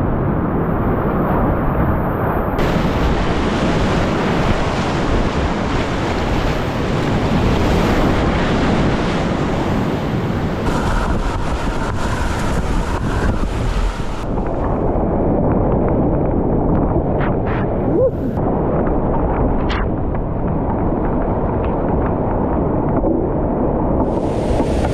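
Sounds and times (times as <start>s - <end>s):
wind buffeting microphone: 0.0s - 24.9s
river rapids rushing: 10.2s - 14.6s.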